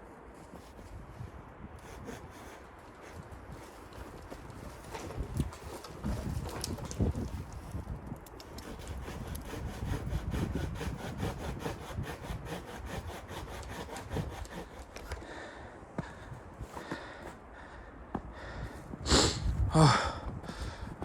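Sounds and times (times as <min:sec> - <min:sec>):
hand saw cutting wood: 0:01.8 - 0:07.8, 0:08.4 - 0:15.4.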